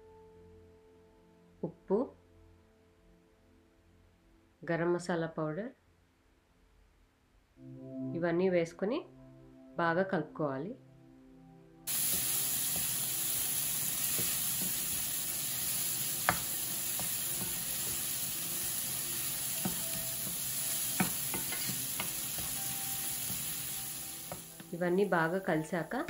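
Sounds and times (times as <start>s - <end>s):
masala sizzling in frying pan: 11.9s - 26.0s
wooden spatula knocking pan: 13.9s - 24.8s.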